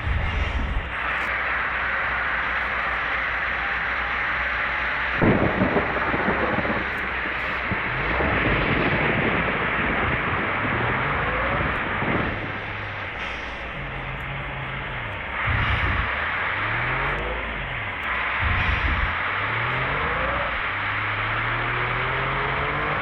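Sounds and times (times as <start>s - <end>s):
low engine drone: 0.0s - 23.0s
rain and wet road hiss: 0.0s - 23.0s
loud wavering sound: 11.4s - 23.0s.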